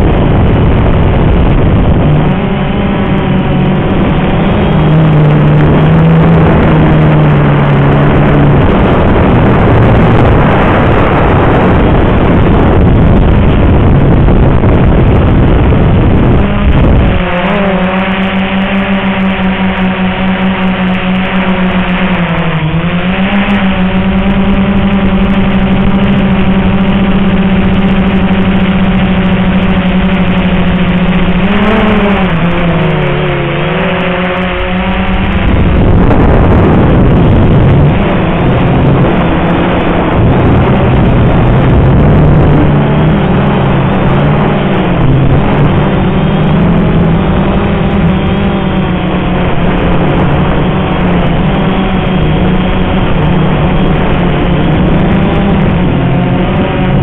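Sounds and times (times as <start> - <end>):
loud rushing noise: 0.0 - 24.0, 24.7 - 57.0
quadcopter rotors humming: 0.0 - 57.0.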